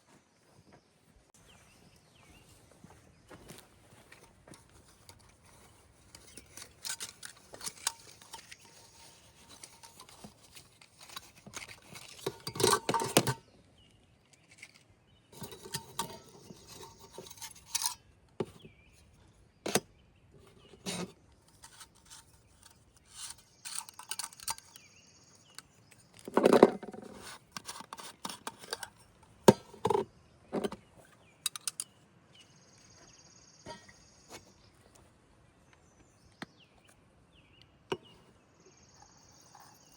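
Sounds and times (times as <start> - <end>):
cookware clinking and scraping: 6.2 - 13.4, 15.4 - 18.6, 20.7 - 24.8.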